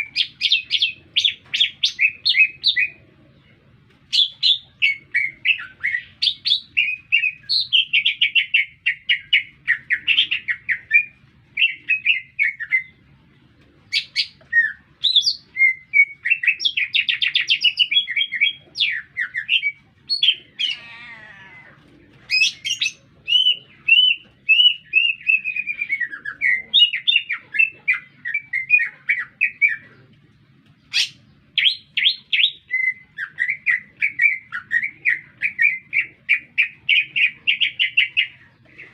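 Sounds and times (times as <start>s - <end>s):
bird singing chirps and trills: 13.9s - 21.4s, 22.3s - 38.9s.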